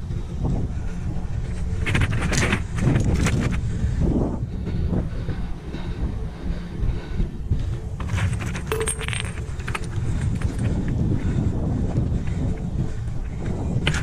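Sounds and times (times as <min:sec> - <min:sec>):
handling rumble: 0:00.0 - 0:14.0
wind on microphone: 0:00.0 - 0:14.0
hard items clinking and rattling: 0:08.0 - 0:11.0.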